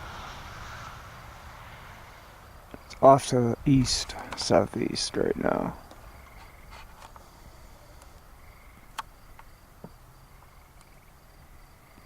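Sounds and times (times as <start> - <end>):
crickets chirping: 0.0 - 12.0
small clicks: 8.9 - 9.5.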